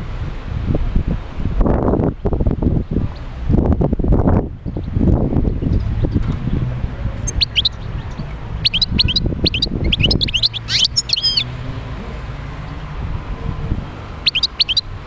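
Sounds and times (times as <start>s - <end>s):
goldfinch twittering song: 4.6s - 6.6s, 7.2s - 11.6s, 14.2s - 15.0s.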